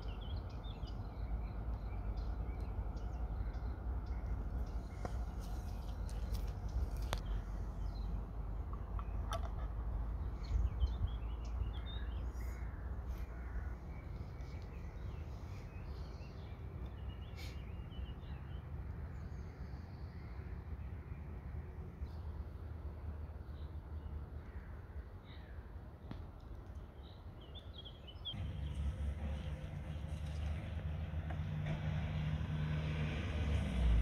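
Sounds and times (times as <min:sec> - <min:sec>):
steady low rumble: 0:00.0 - 0:16.9
birds calling: 0:00.0 - 0:18.6.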